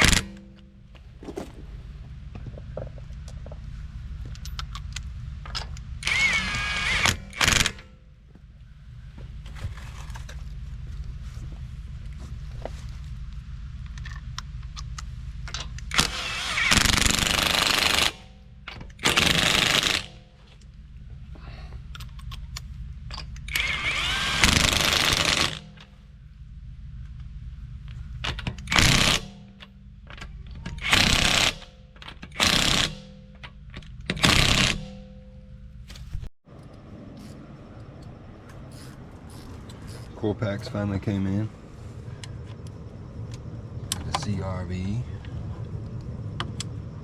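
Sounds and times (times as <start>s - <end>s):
impact wrench bursts: 0.0s - 0.6s, 6.0s - 8.0s, 15.8s - 20.4s, 23.5s - 25.9s, 28.3s - 29.7s, 30.7s - 33.4s, 34.0s - 35.2s
steady low hum: 0.0s - 47.0s.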